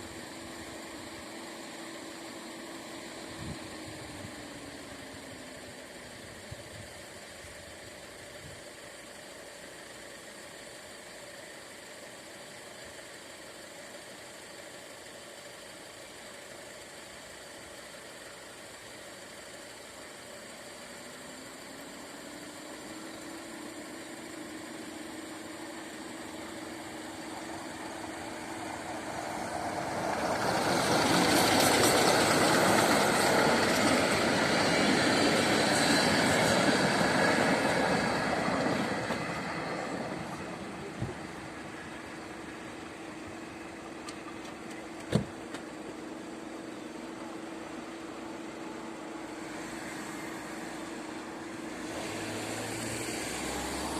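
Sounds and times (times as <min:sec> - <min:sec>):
train passing close by: 0:25.8 - 0:44.0, 0:46.9 - 0:53.9.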